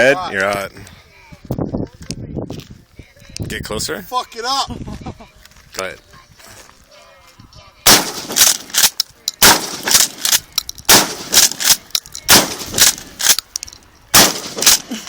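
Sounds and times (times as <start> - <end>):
shotgun blasts: 7.9 - 13.4, 14.1 - 15.0
sharp cracks: 7.9 - 15.0.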